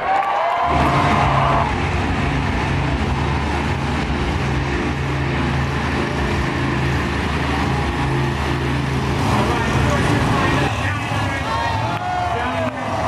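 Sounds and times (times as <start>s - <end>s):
monster truck engine running: 0.0s - 13.0s.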